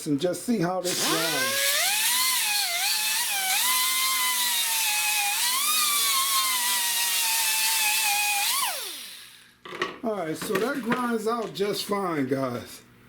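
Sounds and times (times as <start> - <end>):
rotary tool grinding plastic: 0.9 - 9.2.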